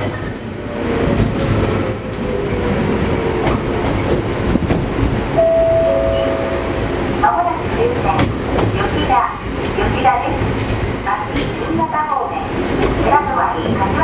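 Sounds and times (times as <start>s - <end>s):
train wheels and motors rumbling: 0.0s - 5.4s, 6.1s - 14.0s
rail joint clacks: 3.4s - 14.0s
steady high tone: 5.4s - 7.8s.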